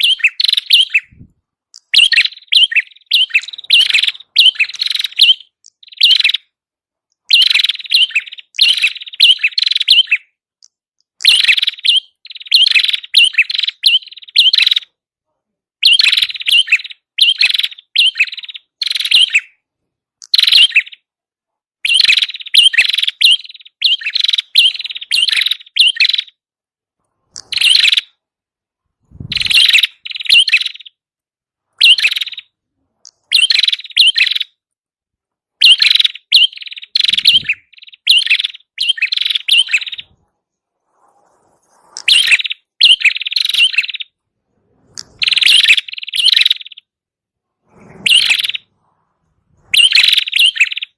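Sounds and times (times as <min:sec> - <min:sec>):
songbird high chirping: 0:00.0 - 0:15.0, 0:15.8 - 0:19.6, 0:20.2 - 0:21.1, 0:21.8 - 0:26.4, 0:27.2 - 0:28.2, 0:29.1 - 0:31.0, 0:31.8 - 0:34.6, 0:35.6 - 0:44.2, 0:44.8 - 0:46.9, 0:47.9 - 0:48.7, 0:49.5 - 0:50.9.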